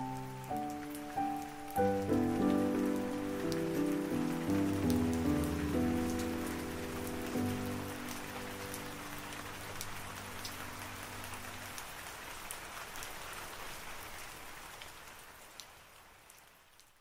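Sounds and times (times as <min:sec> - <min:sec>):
low background music: 0:00.0 - 0:11.4
raindrops ticking: 0:00.0 - 0:14.2
steady rain falling: 0:00.0 - 0:17.0.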